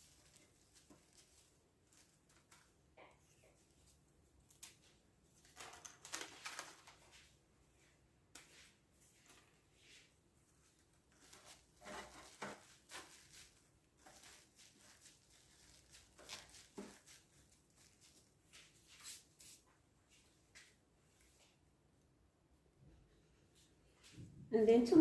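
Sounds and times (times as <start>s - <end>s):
biscuits clicking and rustling: 0.0s - 7.5s, 10.5s - 19.4s.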